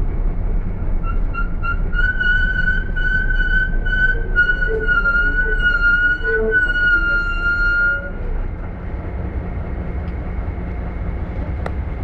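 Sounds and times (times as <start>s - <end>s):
street and engine rumble: 0.0s - 12.0s.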